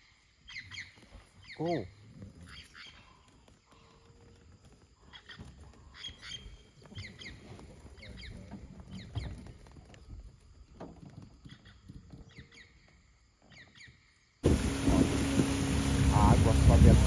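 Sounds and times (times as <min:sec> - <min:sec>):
birds chirping: 0:00.4 - 0:10.2
low rumble: 0:14.4 - 0:17.0.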